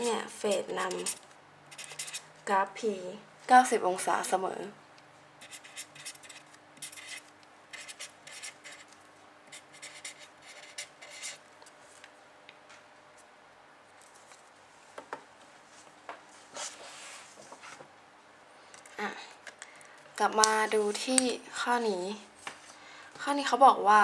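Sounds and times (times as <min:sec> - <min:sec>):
pen scratching on paper: 0:00.4 - 0:02.2, 0:05.4 - 0:08.9, 0:09.5 - 0:11.4.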